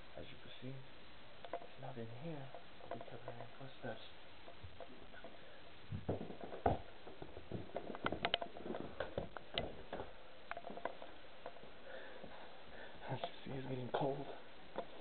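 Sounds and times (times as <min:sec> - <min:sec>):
faint knocks and clicks: 0:01.4 - 0:03.6, 0:04.4 - 0:12.6, 0:13.2 - 0:15.0
loud thump: 0:05.9 - 0:07.8.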